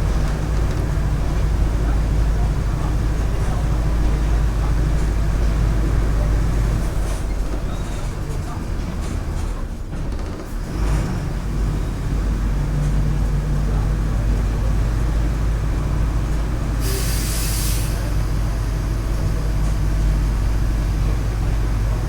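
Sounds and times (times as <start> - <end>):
bus diesel engine running: 0.0 - 22.0
compressed air hiss: 16.8 - 18.1.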